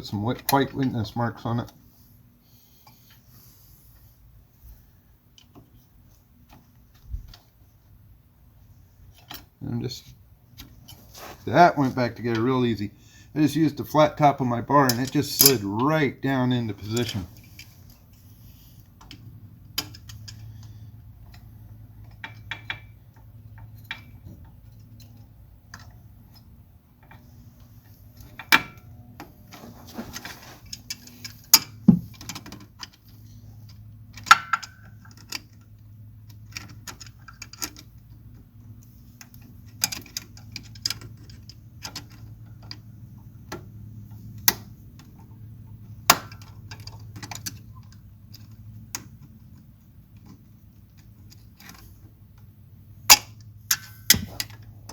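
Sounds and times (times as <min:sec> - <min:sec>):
metal tools clicking and clinking: 0:14.9 - 0:15.6.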